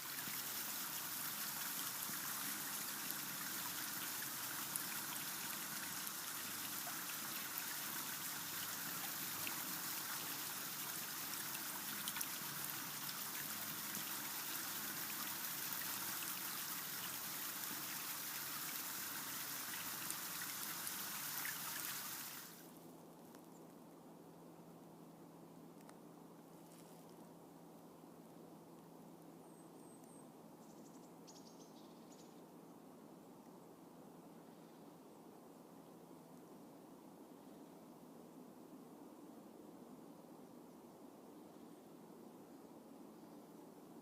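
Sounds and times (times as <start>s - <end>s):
stream water trickling: 0.0s - 22.8s.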